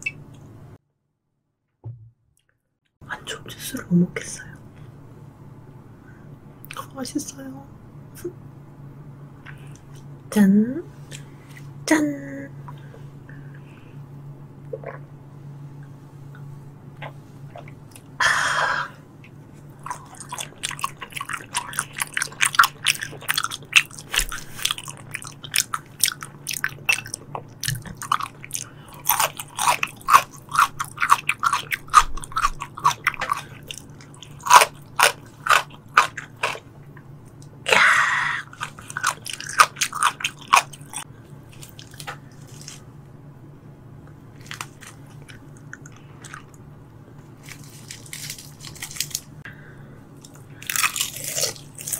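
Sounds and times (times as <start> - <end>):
faint low hum: 1.8 - 51.9
wet chewing clicks and smacks: 19.8 - 37.5.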